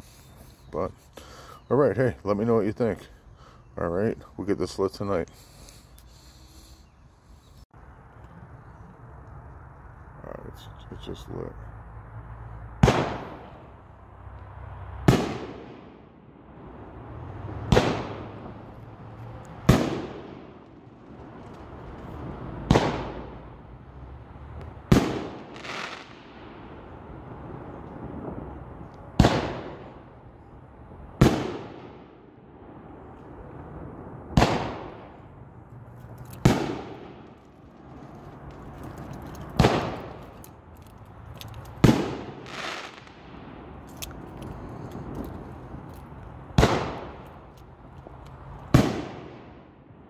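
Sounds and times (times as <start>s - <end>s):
firework cake bangs: 34.4s - 35.0s.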